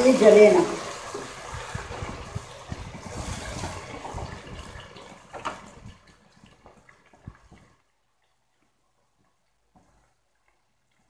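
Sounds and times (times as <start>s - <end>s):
onions sizzling in oil: 0.0s - 4.6s.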